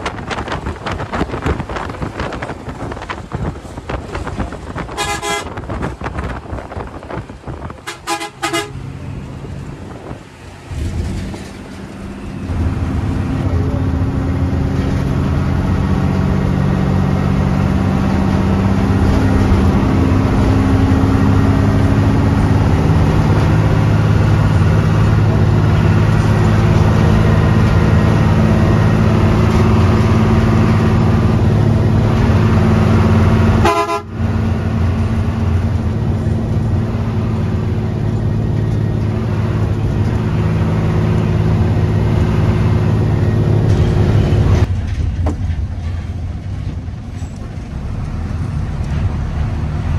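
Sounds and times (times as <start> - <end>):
bus engine drone: 0.0 - 49.9
vehicle horn: 4.9 - 5.6, 7.8 - 8.8, 33.6 - 34.2.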